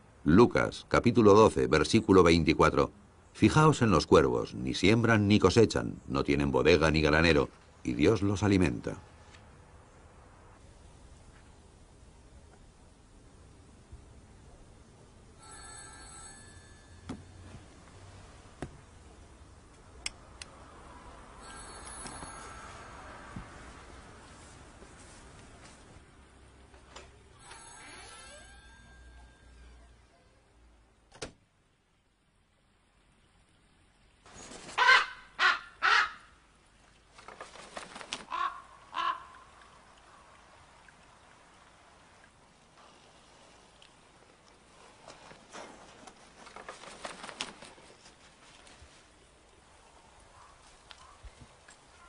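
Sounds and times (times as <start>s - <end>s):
faint sharp clicks: 19.7s - 20.6s
raven croaking: 38.2s - 40.2s.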